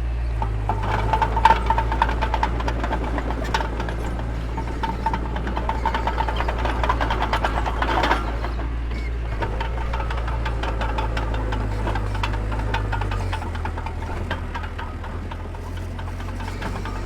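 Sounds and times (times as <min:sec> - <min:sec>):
diesel engine running: 0:00.0 - 0:17.0
metallic clicks and rattles: 0:00.4 - 0:17.0.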